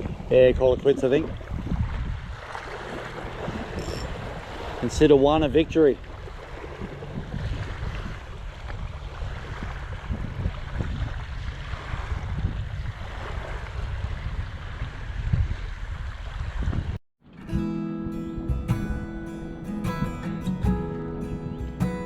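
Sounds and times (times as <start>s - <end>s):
faint water wash: 0.0s - 16.4s
wind buffeting microphone: 0.0s - 22.0s.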